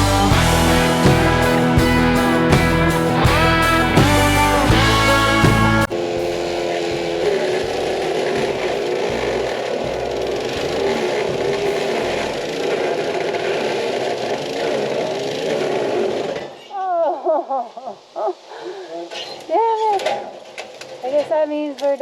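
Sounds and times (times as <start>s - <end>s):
engine-driven equipment running: 0.0s - 16.5s.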